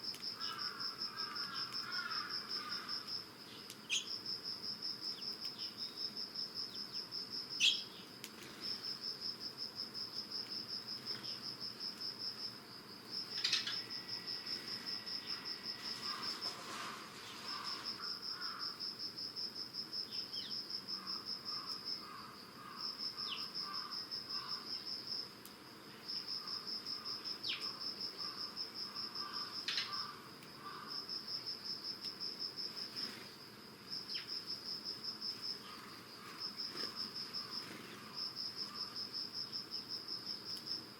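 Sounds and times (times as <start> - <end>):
insects trilling: 0.0 - 40.9
low rhythmic insect call: 0.0 - 40.9
sparrow chirps: 3.6 - 4.2, 7.6 - 8.1.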